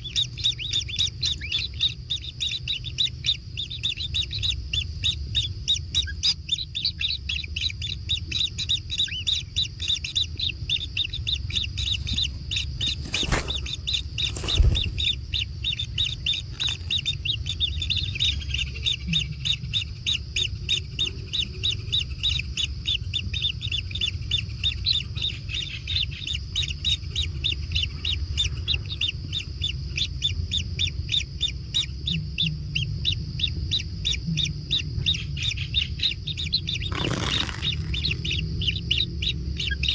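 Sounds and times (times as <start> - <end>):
nestlings begging chirps: 0.0 - 39.9.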